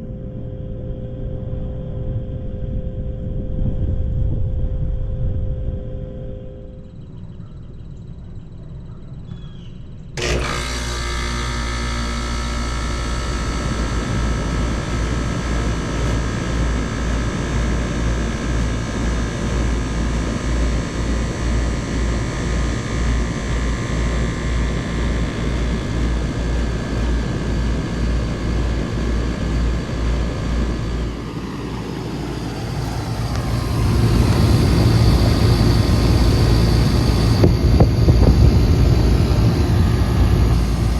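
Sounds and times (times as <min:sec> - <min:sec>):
pulsing low drone: 0:10.2 - 0:40.9
air conditioner humming: 0:29.5 - 0:40.9.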